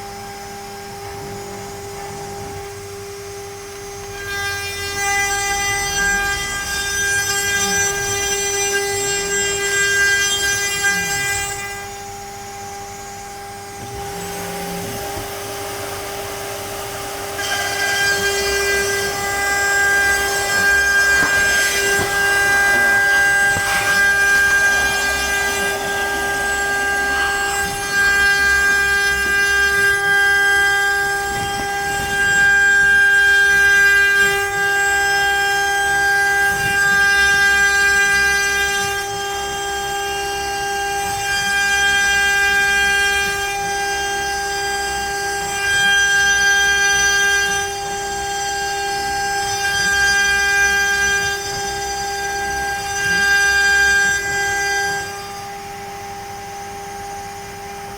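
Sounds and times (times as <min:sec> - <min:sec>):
router spindle whining: 0:00.0 - 0:57.9
bit cutting wood: 0:13.0 - 0:55.2.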